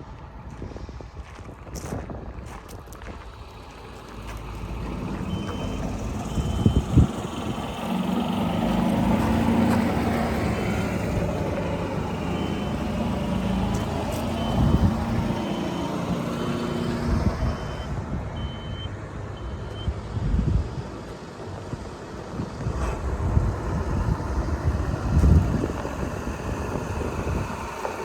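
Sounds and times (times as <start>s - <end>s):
diesel engine running: 0.0s - 28.0s
reversing alarm beeping: 5.2s - 7.2s, 12.2s - 20.0s.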